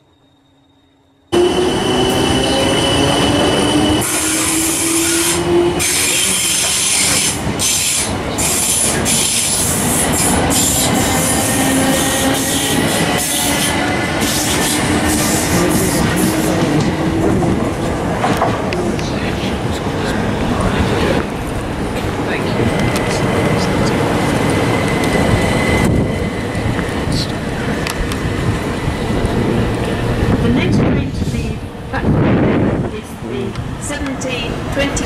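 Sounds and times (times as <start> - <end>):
high steady wheel squeal: 0.0 - 15.3
rising train whine: 0.0 - 35.0.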